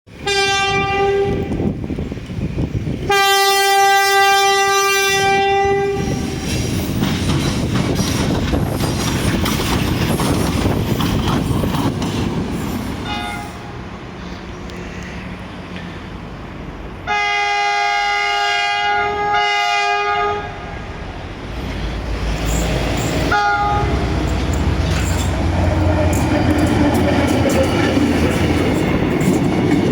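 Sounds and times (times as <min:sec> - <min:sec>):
train horn blasts: 0:00.1 - 0:01.6, 0:03.1 - 0:06.5, 0:13.0 - 0:13.8, 0:17.0 - 0:20.9, 0:23.3 - 0:24.1
train rumbling: 0:00.1 - 0:29.9
wheels clattering over rail joints: 0:06.6 - 0:13.0, 0:21.6 - 0:29.9.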